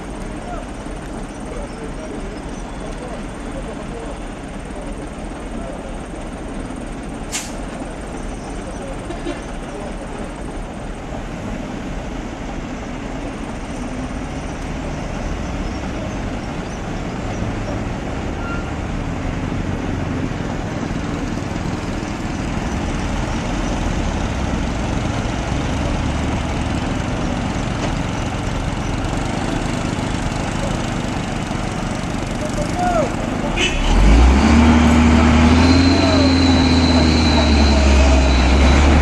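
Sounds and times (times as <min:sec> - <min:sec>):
heavy truck engine running: 0:00.0 - 0:39.0
road noise: 0:00.0 - 0:39.0.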